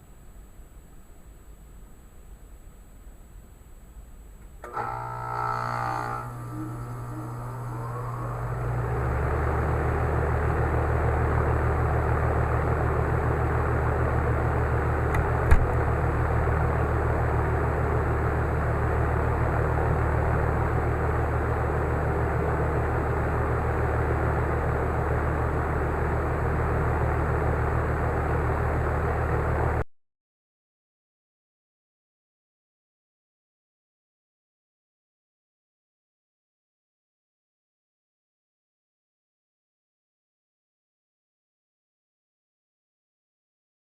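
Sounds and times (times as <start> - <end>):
heat pump compressor hum: 3.8 - 29.8.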